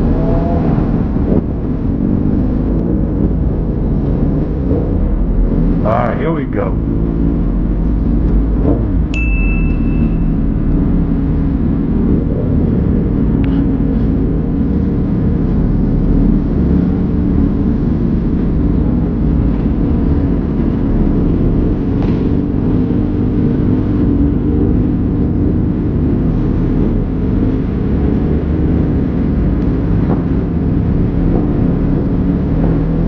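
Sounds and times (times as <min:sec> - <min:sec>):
motorcycle engine and road noise: 0:00.0 - 0:33.0
short high ding: 0:09.1 - 0:10.5.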